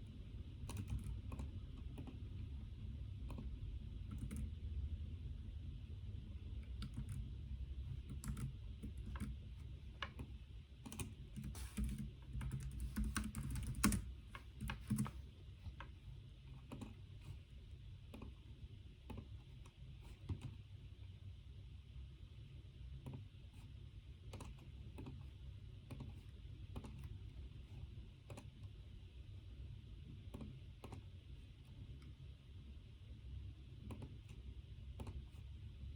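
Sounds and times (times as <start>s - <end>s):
steady low hum: 0.0s - 35.9s
typing on a computer keyboard: 0.6s - 2.4s, 3.2s - 4.6s, 6.6s - 7.3s, 7.9s - 17.4s, 18.0s - 18.4s, 19.0s - 20.6s, 24.2s - 27.2s, 28.2s - 28.8s, 30.2s - 31.1s, 33.7s - 35.4s.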